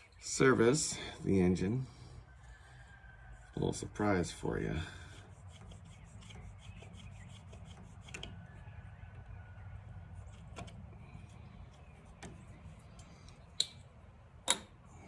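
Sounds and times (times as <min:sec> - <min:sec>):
light clicks of small parts: 0:12.2 - 0:13.9.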